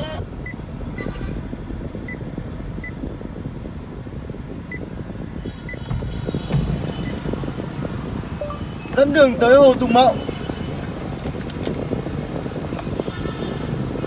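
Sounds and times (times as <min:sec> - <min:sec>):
low car cabin rumble: 0:00.0 - 0:09.9
short high electronic beeps: 0:08.4 - 0:08.8.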